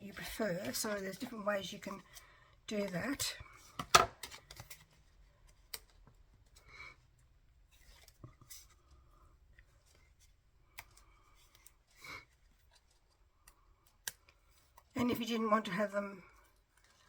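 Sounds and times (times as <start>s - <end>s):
paper rustling: 7.6s - 13.3s.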